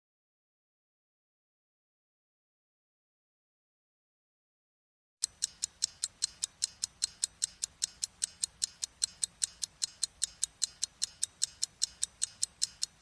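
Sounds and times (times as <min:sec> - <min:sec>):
rapid high-pitched ticking: 0:05.2 - 0:13.0.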